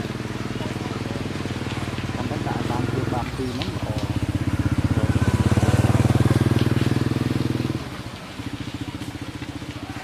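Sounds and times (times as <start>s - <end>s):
small engine puttering: 0.0s - 10.0s.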